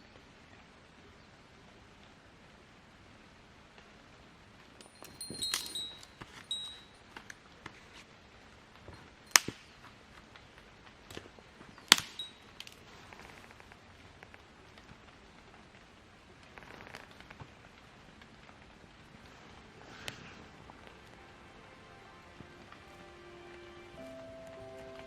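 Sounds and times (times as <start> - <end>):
campfire wood crackling: 0.2 - 25.0
metallic clink: 4.8 - 7.1, 11.8 - 12.8.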